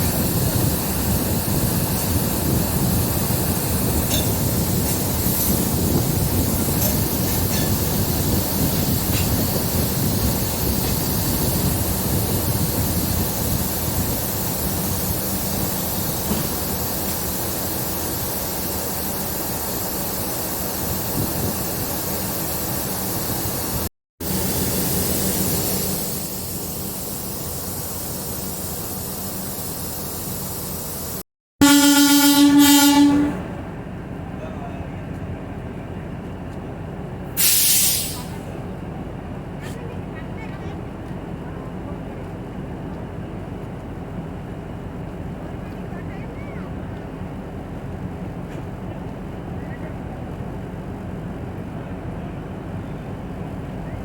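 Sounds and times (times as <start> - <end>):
train rumble and hiss: 0.0 - 54.0
loud train horn: 31.6 - 33.6.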